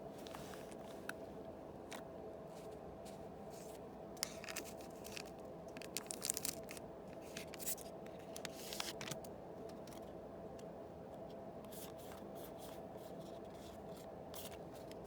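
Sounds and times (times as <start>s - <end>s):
faint steady hum: 0.0s - 15.0s
wrapper ripping and crinkling: 4.4s - 6.8s.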